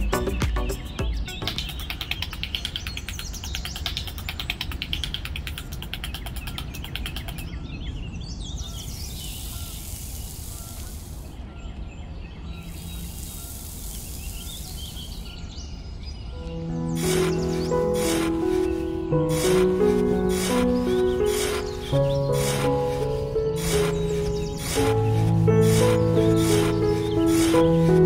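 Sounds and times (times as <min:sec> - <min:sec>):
fast rattling bird trill: 0:00.0 - 0:07.6, 0:16.8 - 0:28.0
birds chirping: 0:00.0 - 0:28.0
trowel scraping through sand: 0:17.0 - 0:28.0.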